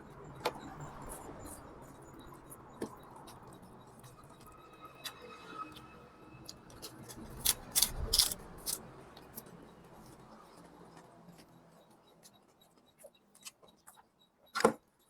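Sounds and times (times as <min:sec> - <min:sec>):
person chewing noodles: 0:06.8 - 0:08.8.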